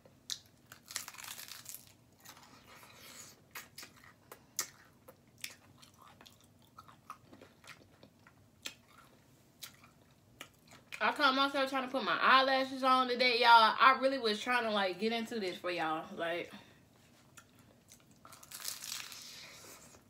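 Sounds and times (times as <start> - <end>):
person chewing: 0.3 - 11.0, 17.3 - 20.0.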